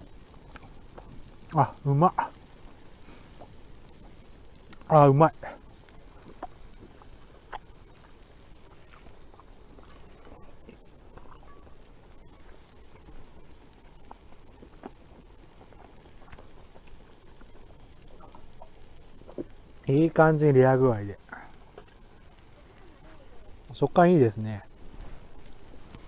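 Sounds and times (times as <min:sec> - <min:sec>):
low steady hiss: 0:00.0 - 0:26.0
person chewing steak: 0:02.3 - 0:04.9, 0:05.6 - 0:19.9, 0:21.2 - 0:23.7.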